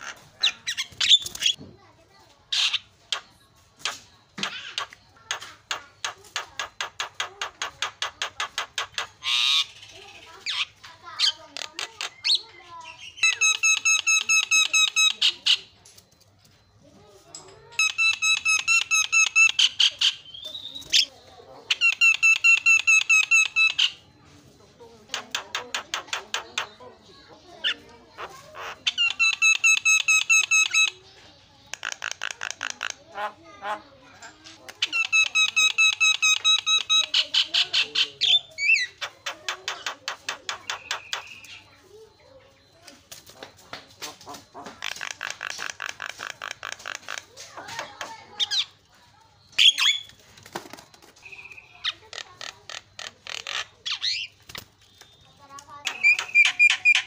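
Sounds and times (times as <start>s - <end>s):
bird chattering: 0.0s - 16.0s, 17.2s - 57.0s
bird squawk: 2.5s - 15.7s, 27.6s - 31.0s, 44.0s - 48.8s.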